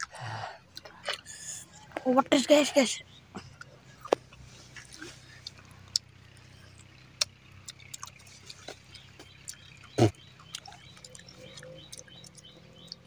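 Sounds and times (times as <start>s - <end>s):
chewing clicks: 3.5s - 13.0s
lip smacks: 3.6s - 13.0s.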